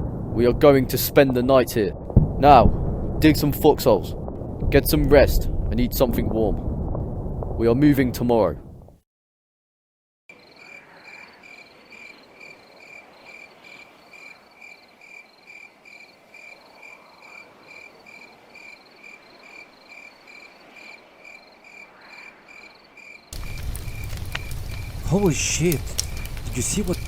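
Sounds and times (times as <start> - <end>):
cricket chirping: 10.3 - 27.0
faint hiss: 23.4 - 27.0.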